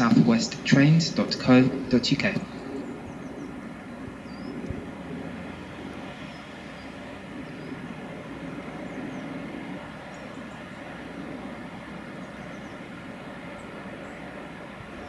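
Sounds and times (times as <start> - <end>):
train rumbling: 0.0 - 15.0
faint bird chirps: 4.2 - 4.7.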